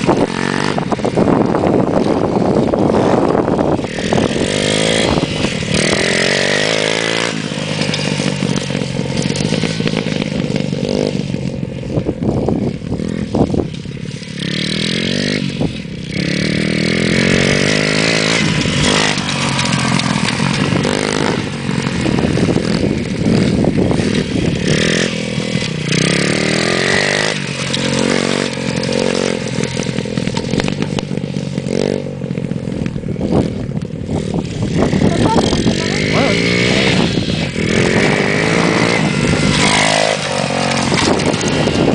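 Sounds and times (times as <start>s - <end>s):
motocross bike engine revving: 0.0s - 41.9s.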